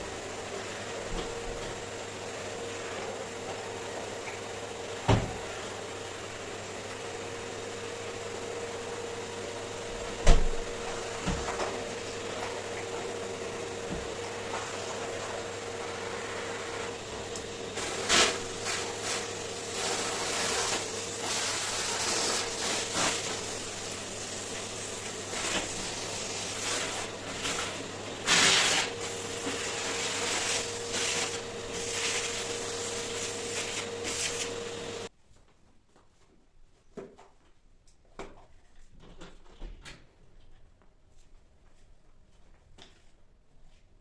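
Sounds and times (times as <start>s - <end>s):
appliance motor humming: 0.0s - 35.1s.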